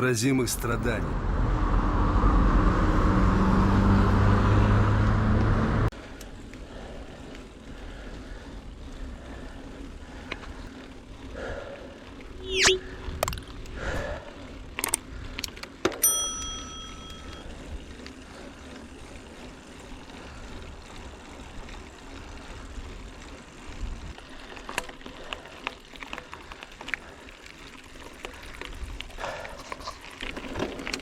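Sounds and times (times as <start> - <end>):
bike rumbling over rough track: 0.0 - 31.0
bicycle bell ringing: 16.0 - 17.6.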